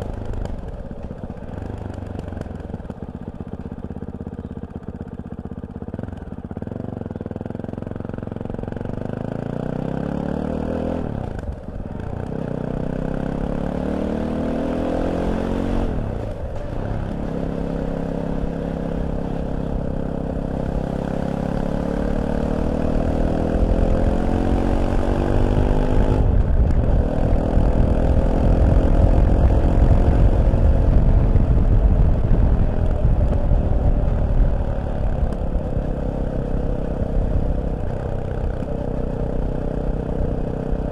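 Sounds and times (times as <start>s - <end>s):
motorcycle engine accelerating: 0.0s - 40.9s
low rush of wind noise: 11.0s - 40.9s.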